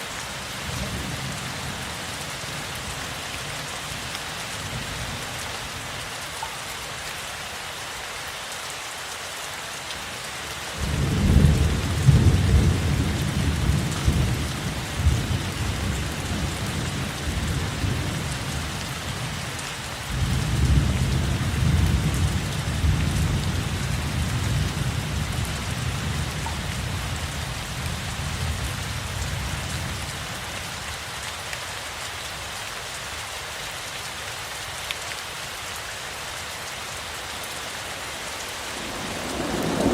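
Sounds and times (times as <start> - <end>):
steady rain falling: 0.0 - 39.9
thunder rumbling: 38.7 - 39.9.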